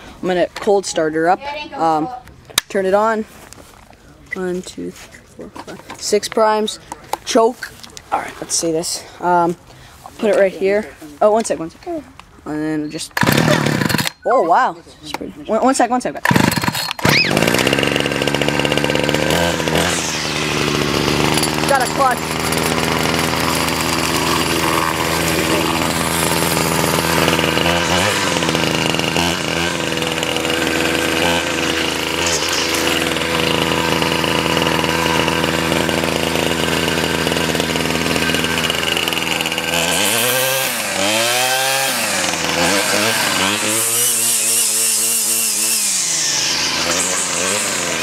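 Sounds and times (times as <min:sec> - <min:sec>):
string trimmer engine running: 0:13.1 - 0:14.2, 0:16.2 - 0:48.0.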